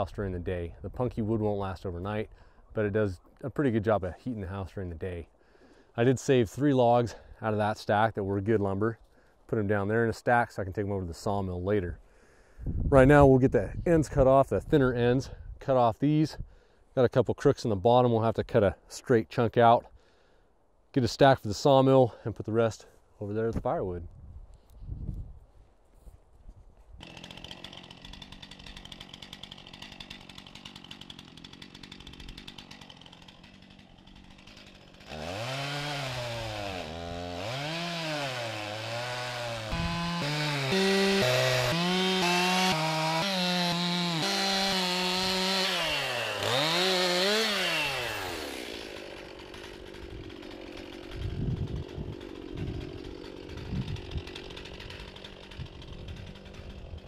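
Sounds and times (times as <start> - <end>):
chainsaw revving and cutting logs: 27.0 - 57.0.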